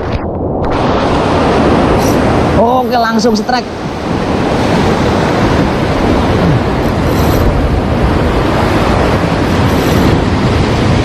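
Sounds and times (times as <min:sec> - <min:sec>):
heavy surf washing ashore: 0:00.0 - 0:11.0
wind buffeting microphone: 0:00.0 - 0:11.0.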